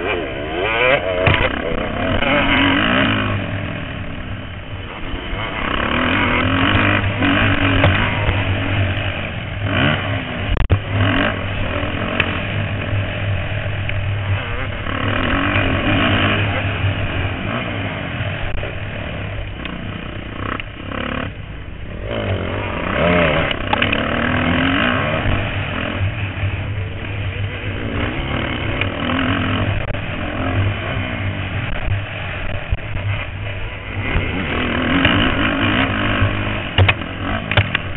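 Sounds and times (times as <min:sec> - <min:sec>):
motocross bikes revving: 0:00.0 - 0:37.9.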